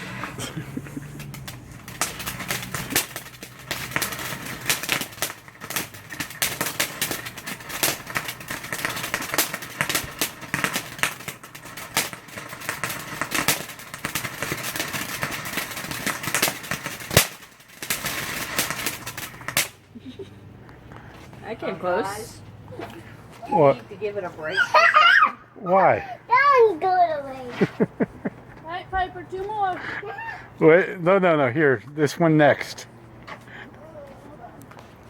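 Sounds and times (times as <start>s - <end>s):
loud firework bang: 0.0s - 19.8s
fireworks crackling and popping: 0.0s - 25.2s, 26.3s - 35.0s.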